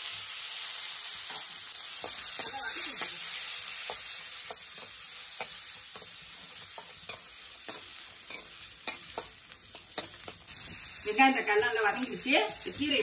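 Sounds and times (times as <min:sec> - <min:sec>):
onion and tomato sizzling in oil: 0:00.0 - 0:13.0
metal spoon scraping a pan: 0:01.3 - 0:10.8.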